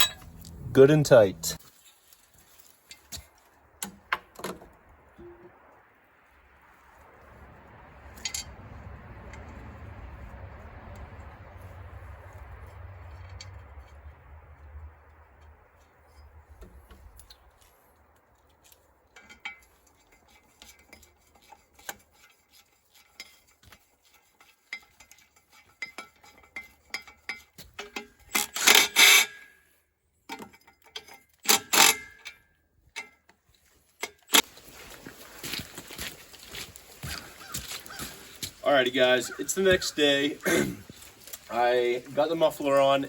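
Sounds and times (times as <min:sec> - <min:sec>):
metal tools clinking on metal: 0:00.0 - 0:01.6.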